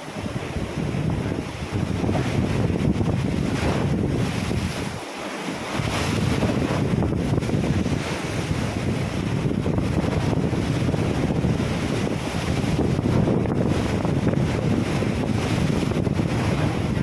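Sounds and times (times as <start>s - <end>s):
ocean waves splashing: 0.0s - 17.0s
wind buffeting microphone: 0.0s - 17.0s.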